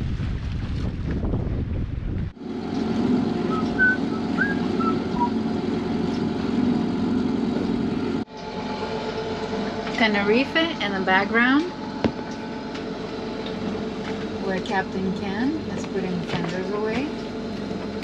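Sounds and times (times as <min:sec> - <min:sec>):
wind buffeting microphone: 0:00.0 - 0:05.3
boat diesel engine running: 0:01.1 - 0:18.0.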